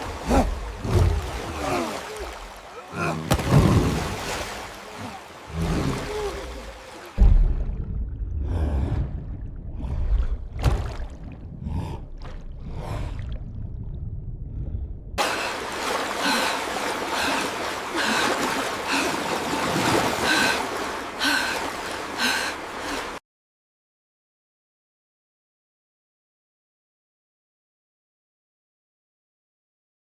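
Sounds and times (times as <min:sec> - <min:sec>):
water rushing: 0:00.0 - 0:14.0, 0:15.2 - 0:23.2
water splashing and churning: 0:00.0 - 0:23.2.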